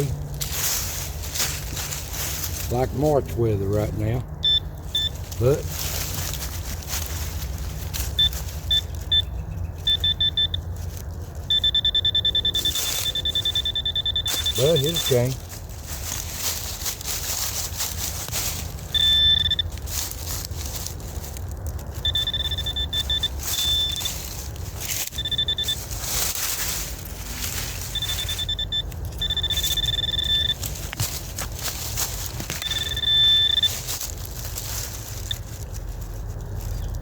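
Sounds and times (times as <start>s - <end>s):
metal detector beeping: 4.4s - 5.7s, 8.0s - 10.7s, 11.4s - 15.5s, 18.6s - 19.9s, 21.9s - 34.2s, 35.2s - 35.5s.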